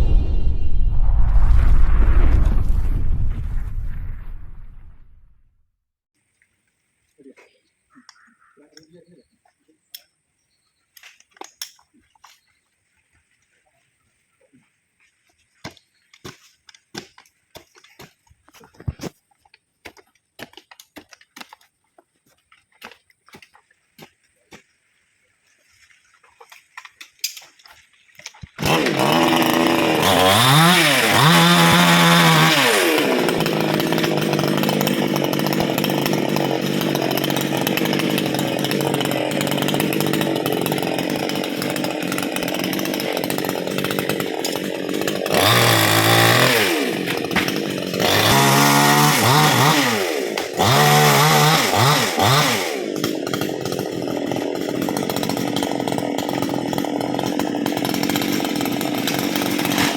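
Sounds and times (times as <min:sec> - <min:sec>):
chainsaw revving and cutting wood: 0:28.6 - 0:59.9.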